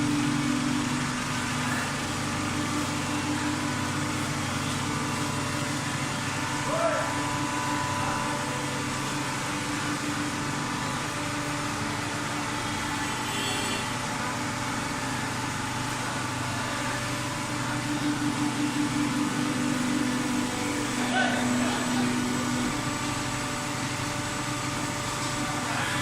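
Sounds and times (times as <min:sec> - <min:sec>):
baler mechanical hum: 0:00.0 - 0:26.0.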